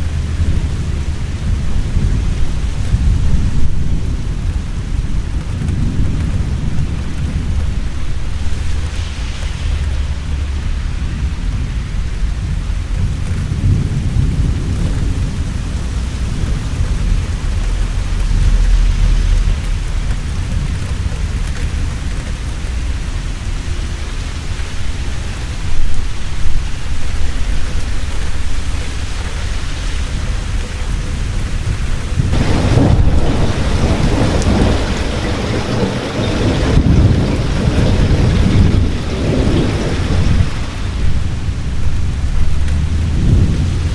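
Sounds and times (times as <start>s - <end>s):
heavy rain: 0.0s - 43.9s
rolling thunder: 0.0s - 43.9s
loud thunder cracks: 29.4s - 43.9s.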